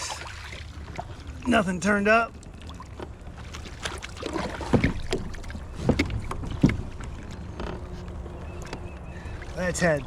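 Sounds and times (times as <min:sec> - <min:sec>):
moving water: 0:00.0 - 0:10.0
wind: 0:00.0 - 0:10.0
paddle knocking against kayak hull: 0:03.8 - 0:08.9.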